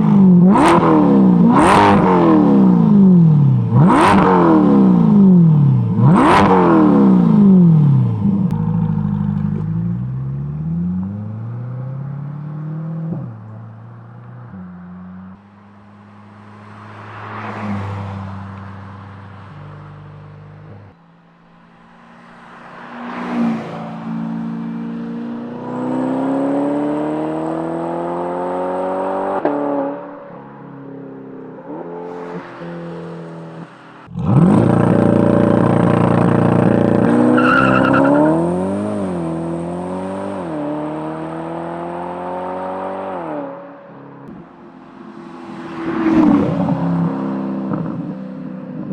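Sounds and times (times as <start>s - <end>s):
sports car engine revving: 0.0s - 13.4s, 34.1s - 43.5s
car engine accelerating: 0.2s - 30.0s, 33.5s - 43.6s
car passing by: 16.2s - 19.8s, 21.8s - 29.1s, 31.7s - 34.7s, 44.9s - 48.1s.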